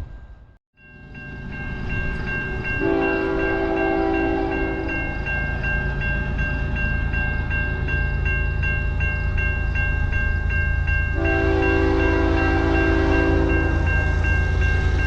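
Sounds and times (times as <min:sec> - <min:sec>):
train rumbling: 0:00.0 - 0:15.0
level-crossing bell dinging: 0:00.8 - 0:15.0
train horn blast: 0:02.8 - 0:05.2, 0:11.2 - 0:14.0.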